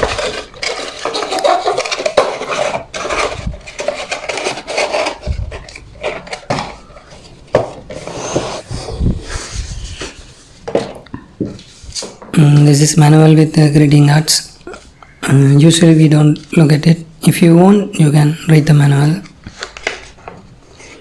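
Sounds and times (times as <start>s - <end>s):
cardboard and plastic rustling: 0.0s - 13.4s, 19.1s - 21.0s.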